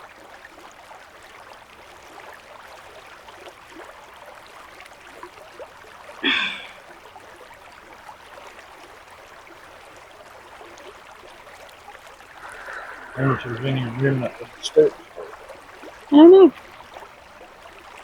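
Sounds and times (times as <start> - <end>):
person's voice: 12.4 - 15.4, 16.1 - 16.5.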